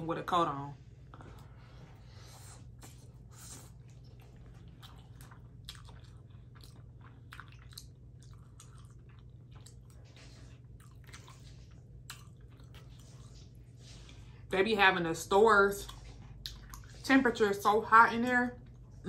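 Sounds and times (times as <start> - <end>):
steady low hum: 0.0 - 19.0
person chewing: 2.3 - 14.2, 15.8 - 17.0.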